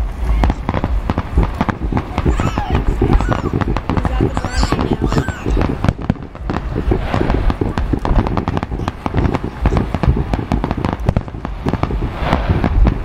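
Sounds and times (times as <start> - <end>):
fireworks bangs and crackles: 0.0 - 13.0
steady low rumble: 0.0 - 13.0.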